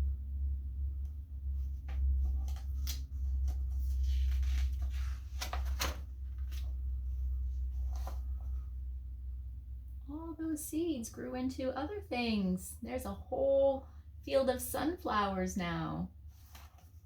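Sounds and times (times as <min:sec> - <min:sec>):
low hum: 0:00.0 - 0:17.0
book pages turning: 0:01.6 - 0:08.6, 0:16.3 - 0:17.0.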